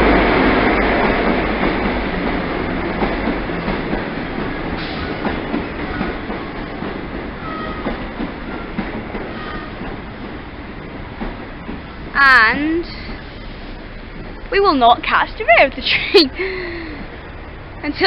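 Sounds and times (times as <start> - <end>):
train wheels clicking over rail joints: 0.0 - 18.0
faint wheel squeals: 7.4 - 9.8.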